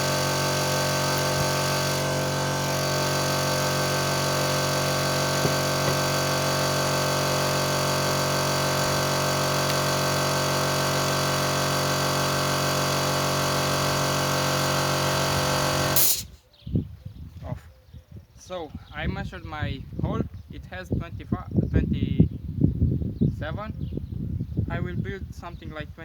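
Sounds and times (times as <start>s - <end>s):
electric power tool motor running: 0.0s - 16.3s.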